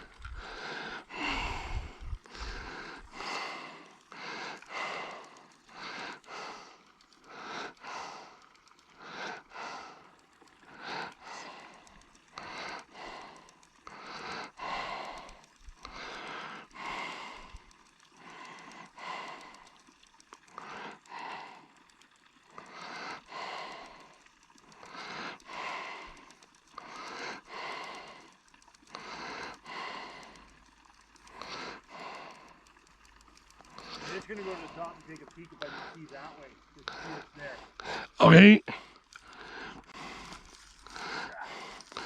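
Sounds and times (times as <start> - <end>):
person breathing close: 0.0 - 10.1, 36.8 - 42.0
faint clicks: 0.0 - 42.0.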